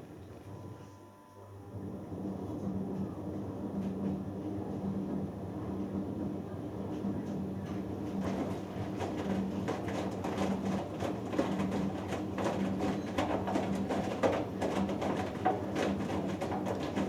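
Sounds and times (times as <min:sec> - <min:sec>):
washing machine motor hum: 0:01.6 - 0:17.0
wet laundry tumbling and sloshing: 0:08.2 - 0:17.0.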